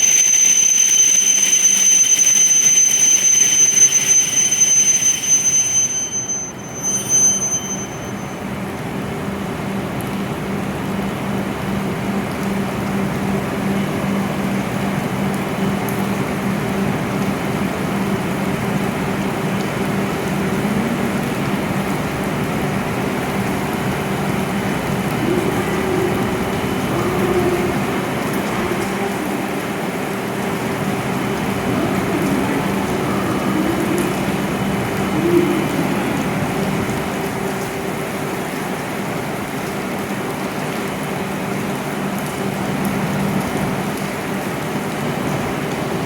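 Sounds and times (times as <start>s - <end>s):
train high-pitched whine: 0.0s - 9.0s, 18.0s - 38.9s
standing train low hum: 0.0s - 46.0s
rushing whirring noise: 21.6s - 37.7s.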